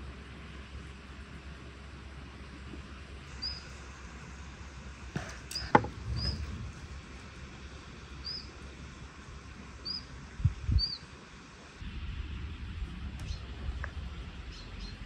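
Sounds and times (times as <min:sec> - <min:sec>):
steady low rumble: 0:00.0 - 0:15.0
small bird chirping: 0:03.3 - 0:03.8, 0:05.3 - 0:06.6, 0:08.2 - 0:08.6, 0:09.8 - 0:10.1, 0:10.7 - 0:11.1
soft thumps: 0:05.2 - 0:06.7.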